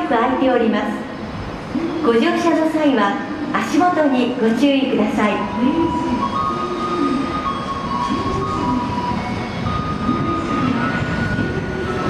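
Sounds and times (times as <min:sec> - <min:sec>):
train equipment humming: 0:00.0 - 0:12.0
rising and falling whines: 0:05.4 - 0:12.0.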